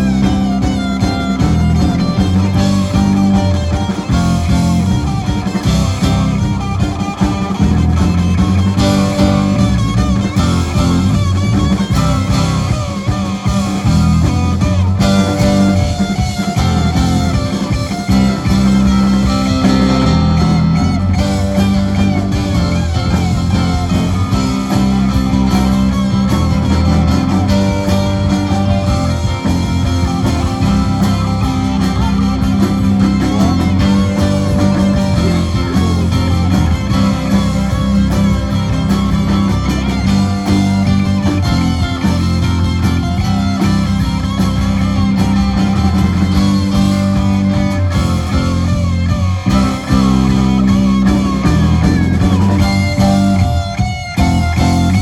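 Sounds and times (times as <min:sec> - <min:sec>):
electric guitar lead with bent notes: 0:00.0 - 0:55.0
rock band playing: 0:00.0 - 0:55.0.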